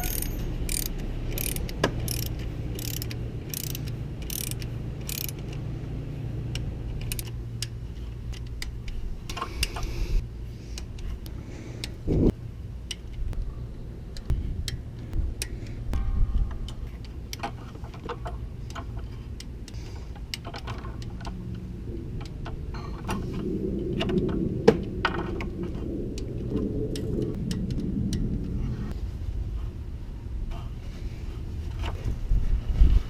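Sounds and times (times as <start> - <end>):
torque wrench ratcheting clicks: 0.0 - 5.6, 6.5 - 9.0.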